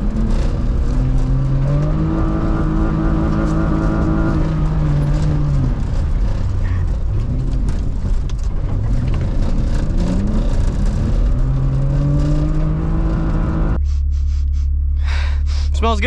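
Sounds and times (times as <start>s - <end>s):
car engine revving hard: 0.0s - 8.1s, 8.7s - 13.8s.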